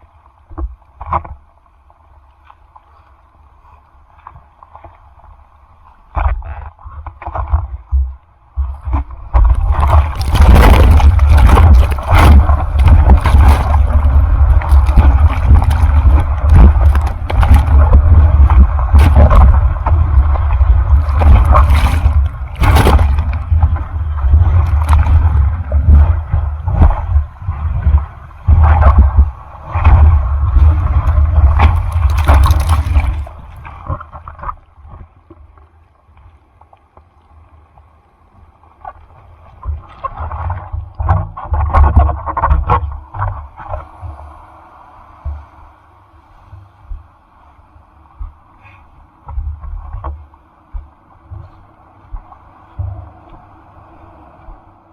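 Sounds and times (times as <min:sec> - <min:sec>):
low rumble of buffeting: 0:06.7 - 0:54.9
surf splashing over microphone: 0:08.6 - 0:35.0.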